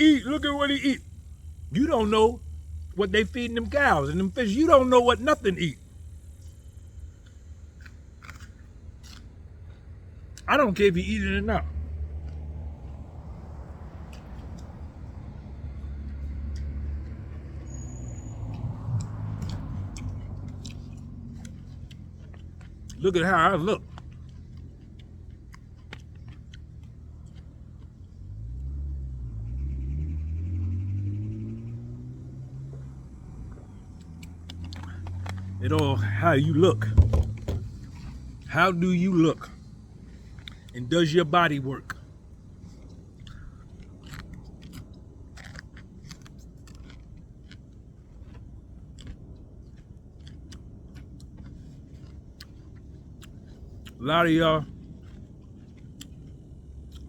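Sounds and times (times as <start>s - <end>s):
vehicle engine accelerating: 0.0s - 7.0s, 10.5s - 43.5s
low background rumble: 0.0s - 29.9s, 32.4s - 57.0s
person chewing crunchy food: 5.8s - 10.5s, 18.5s - 28.8s, 32.6s - 36.7s, 37.3s - 57.0s.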